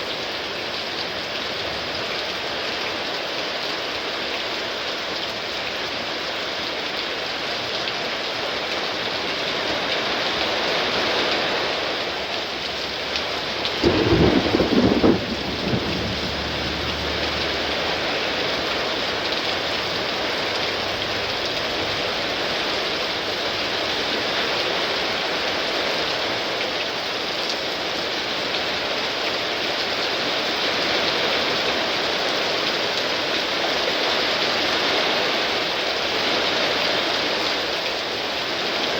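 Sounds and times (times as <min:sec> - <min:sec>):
heavy rain pouring: 0:00.0 - 0:38.9
thunder clap and rumble: 0:12.7 - 0:25.4.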